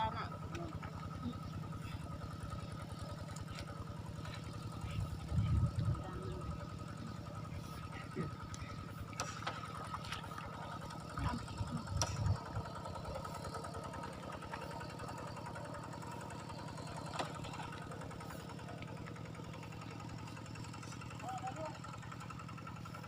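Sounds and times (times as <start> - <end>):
small engine running: 0.0 - 23.0.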